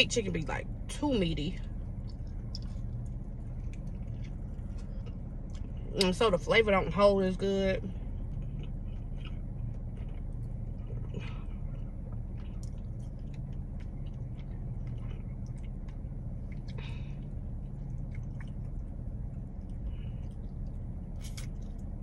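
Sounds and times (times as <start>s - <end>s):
car cabin hum: 0.0s - 22.0s
person chewing wetly: 1.9s - 6.0s, 8.0s - 22.0s.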